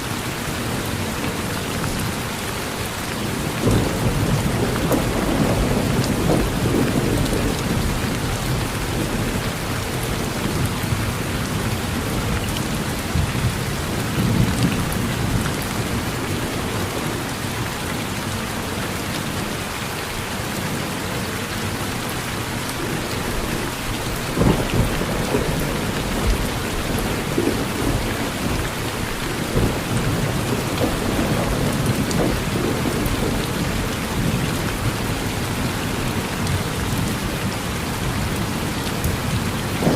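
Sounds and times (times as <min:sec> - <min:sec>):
thunder rumbling: 0:03.3 - 0:17.4, 0:22.8 - 0:39.9.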